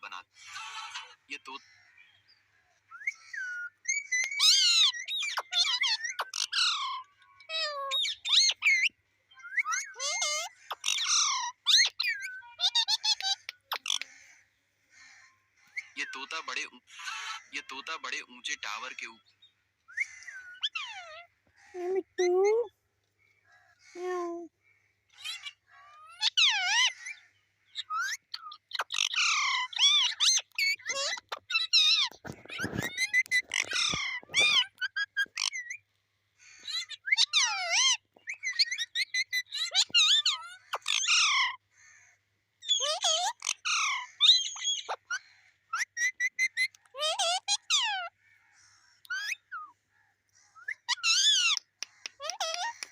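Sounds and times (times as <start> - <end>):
parrot whistles and squawks: 2.9 - 14.1, 27.8 - 35.8, 36.6 - 41.6, 42.6 - 48.2, 49.0 - 49.8, 50.6 - 52.9.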